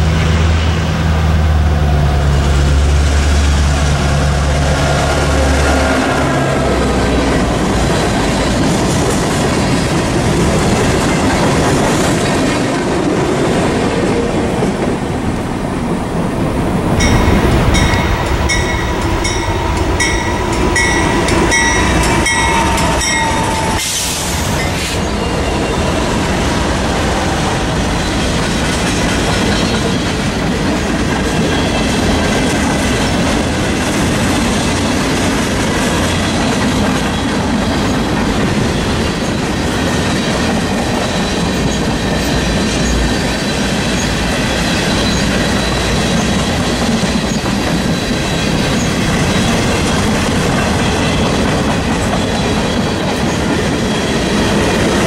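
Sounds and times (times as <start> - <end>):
railcar wheels clattering over joints: 16.9 - 55.0
high pulsing metallic ringing: 17.0 - 26.0.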